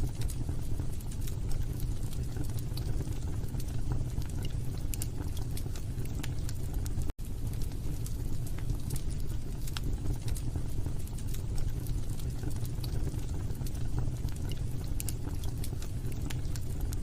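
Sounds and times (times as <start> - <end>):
low rumble of flames: 0.0 - 17.0
wood crackling and popping: 0.0 - 17.0.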